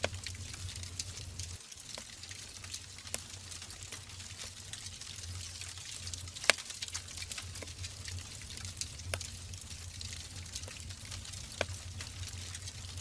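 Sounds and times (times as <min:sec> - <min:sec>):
low steady hum: 0:00.0 - 0:13.0
wood fire crackling and popping: 0:00.0 - 0:13.0.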